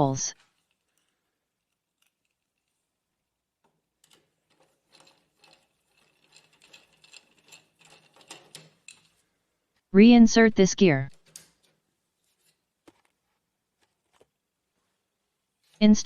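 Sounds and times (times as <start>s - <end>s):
mechanical clicking of small parts: 4.0s - 9.2s.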